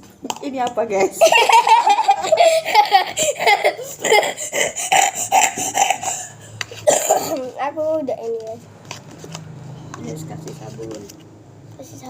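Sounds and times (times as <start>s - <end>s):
laughter: 1.2s - 3.8s.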